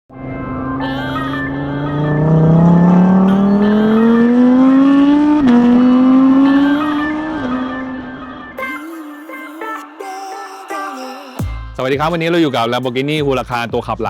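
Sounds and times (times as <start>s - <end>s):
car engine accelerating: 0.1s - 8.6s.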